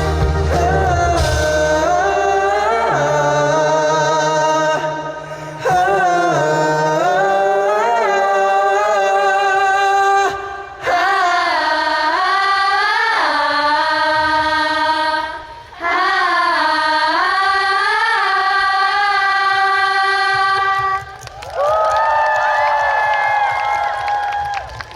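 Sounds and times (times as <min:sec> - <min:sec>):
man singing in high voice: 0:00.4 - 0:13.5
singer breathing: 0:05.1 - 0:05.8.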